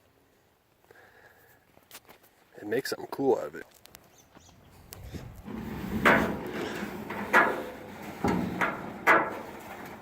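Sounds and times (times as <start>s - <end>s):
steel tank scraping: 5.1s - 10.0s
steel tank knocking and clanking: 5.5s - 10.0s.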